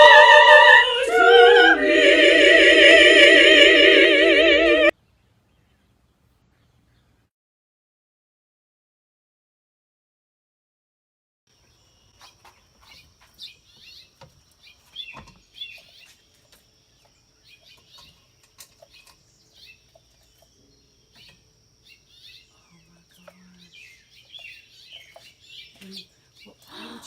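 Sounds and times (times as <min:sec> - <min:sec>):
baby birds chirping: 0:12.1 - 0:27.0.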